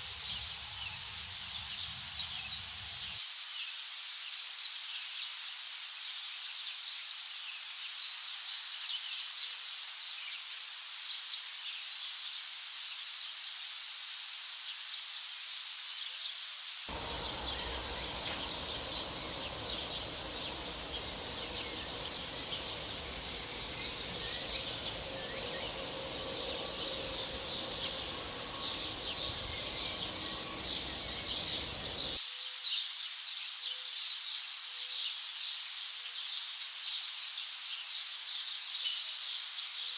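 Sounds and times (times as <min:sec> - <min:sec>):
low background rumble: 0:16.9 - 0:32.2
many birds chirping: 0:16.9 - 0:32.2.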